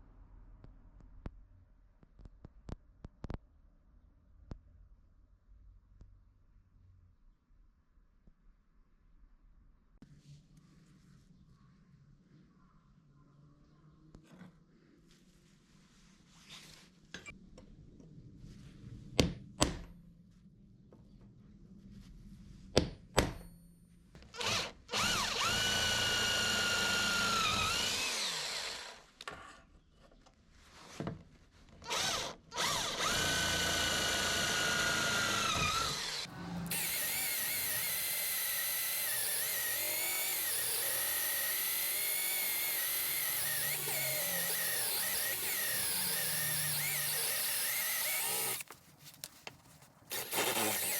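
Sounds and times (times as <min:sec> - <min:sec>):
electric drill boring into steel: 0:24.4 - 0:29.1, 0:31.9 - 0:48.6, 0:50.1 - 0:50.9
power tool running: 0:24.4 - 0:29.1, 0:31.9 - 0:48.6, 0:50.1 - 0:50.9.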